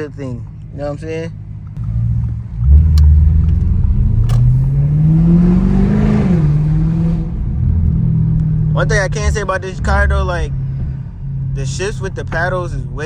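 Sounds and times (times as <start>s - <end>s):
car exhaust accelerating: 1.8s - 13.0s.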